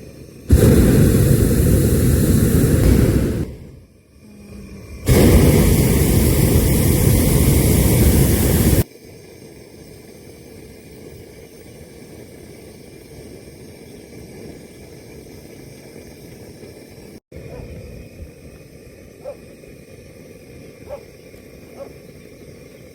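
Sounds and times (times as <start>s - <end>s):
propane burner blast: 0.0s - 8.9s
steady hiss: 0.0s - 22.9s.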